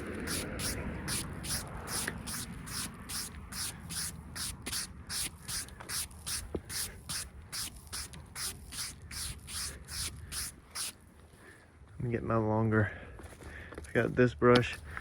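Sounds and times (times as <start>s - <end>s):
bristle brush sweeping wood: 0.0s - 11.0s.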